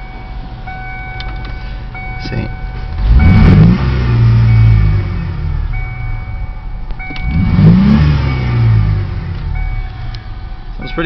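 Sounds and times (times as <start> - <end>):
car engine revving: 2.8 - 11.0.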